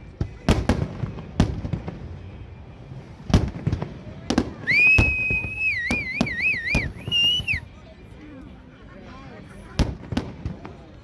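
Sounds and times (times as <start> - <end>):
fireworks booming: 3.0 - 7.6
high warbling whistle: 4.7 - 7.6.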